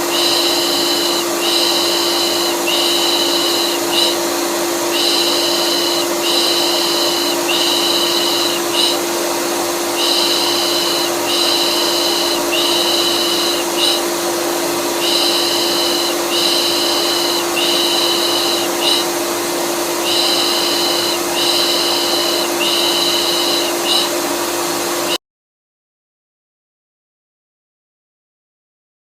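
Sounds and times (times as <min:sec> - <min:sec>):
vacuum cleaner humming: 0:00.0 - 0:25.2.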